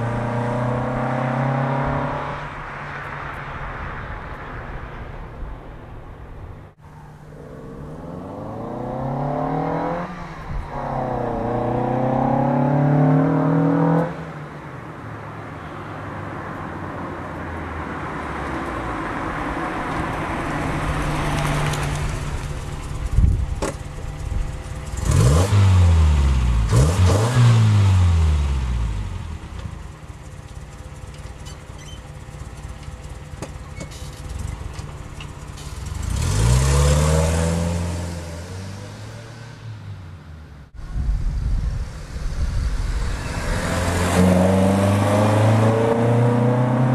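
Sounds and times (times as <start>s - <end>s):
car engine revving: 0.0s - 2.7s, 7.1s - 14.2s, 19.7s - 46.9s.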